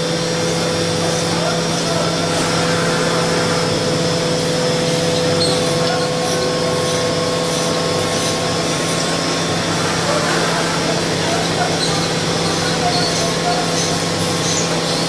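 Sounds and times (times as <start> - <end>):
machine hum and whine: 0.0 - 15.0.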